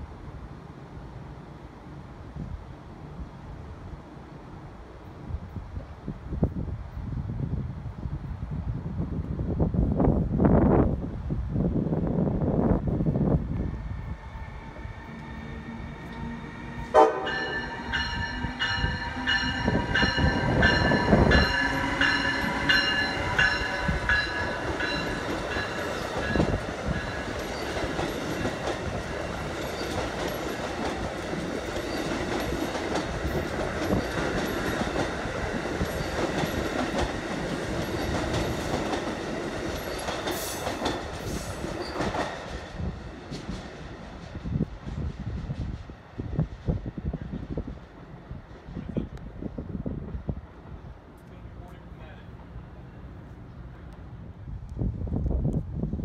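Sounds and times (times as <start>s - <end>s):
train rumble and wheel clatter: 0.0s - 56.0s
train horn: 13.8s - 24.5s.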